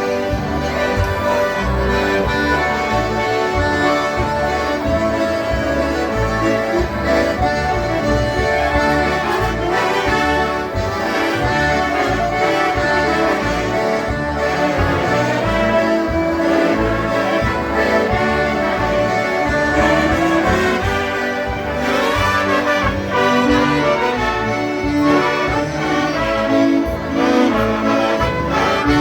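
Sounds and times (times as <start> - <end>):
concertinas playing a polka: 0.0 - 29.0.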